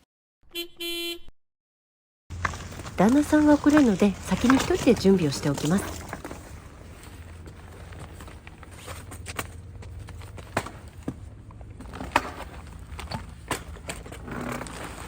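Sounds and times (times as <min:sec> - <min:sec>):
footsteps: 0:02.3 - 0:11.3
camping gear clattering: 0:02.3 - 0:15.0.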